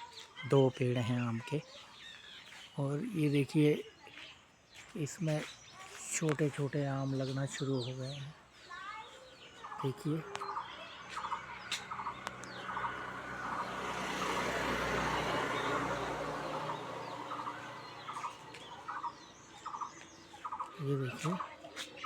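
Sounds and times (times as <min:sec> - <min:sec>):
passing vehicle rushing: 0:11.3 - 0:19.8.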